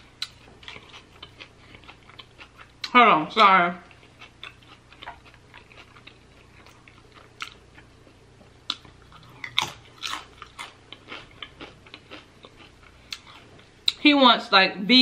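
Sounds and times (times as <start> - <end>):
tortilla chip crunching: 3.9 - 7.9, 8.6 - 13.5.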